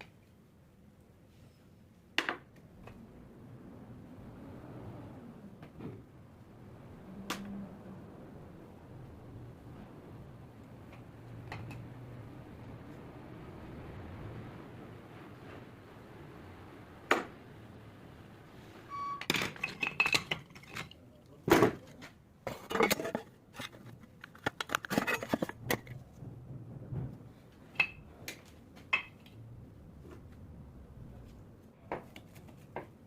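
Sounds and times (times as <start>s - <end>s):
metal parts and tools clinking: 19.2s - 21.0s, 22.6s - 25.9s.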